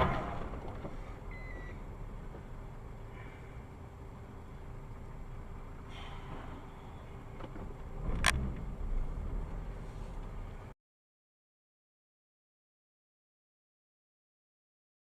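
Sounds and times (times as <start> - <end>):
low rumble: 0.0 - 10.7
car road and engine noise: 0.0 - 10.8.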